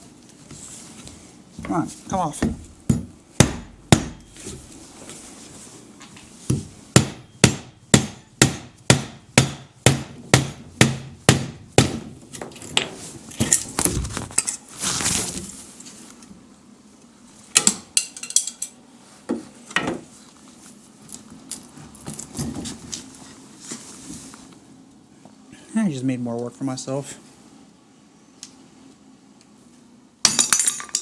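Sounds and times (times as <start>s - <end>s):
hammer striking wood: 2.4s - 4.3s, 6.5s - 12.2s.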